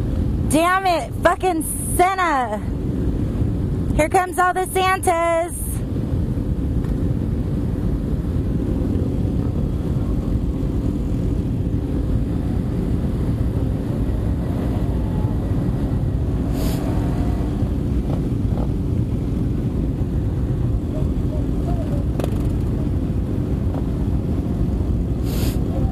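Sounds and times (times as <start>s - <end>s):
wind noise on microphone: 0.0s - 25.9s
motorcycles running: 6.6s - 25.9s.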